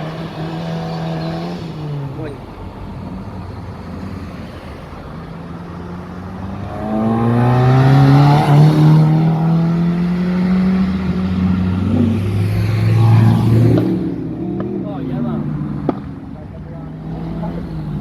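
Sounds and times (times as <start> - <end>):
car engine accelerating: 5.4 - 18.0.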